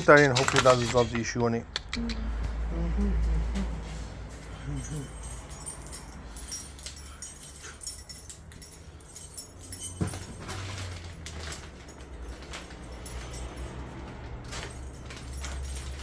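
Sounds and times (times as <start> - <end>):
small clicks and metallic rattles: 4.4 - 16.0.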